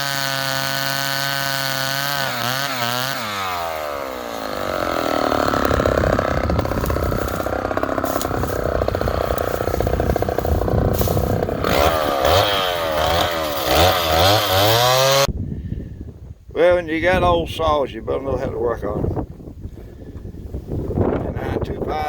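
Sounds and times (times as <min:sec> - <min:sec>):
chainsaw cutting wood: 0:00.0 - 0:15.3.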